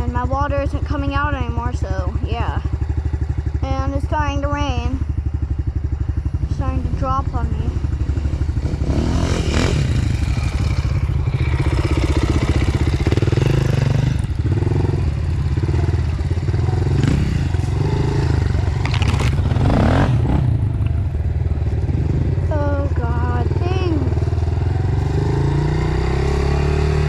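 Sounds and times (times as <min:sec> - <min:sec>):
dirt bike engine revving: 0:00.0 - 0:27.0
bike clattering over rough trail: 0:09.5 - 0:23.2.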